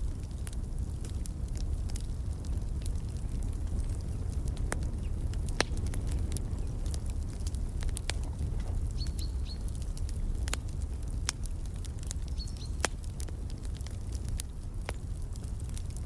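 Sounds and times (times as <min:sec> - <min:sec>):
wood fire crackling: 0:00.0 - 0:16.0
small bird chirping: 0:09.0 - 0:09.6, 0:12.3 - 0:12.8.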